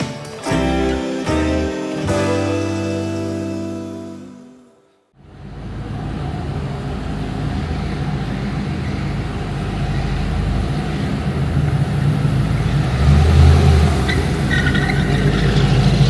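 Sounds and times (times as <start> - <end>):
car engine rumbling: 5.2 - 16.0.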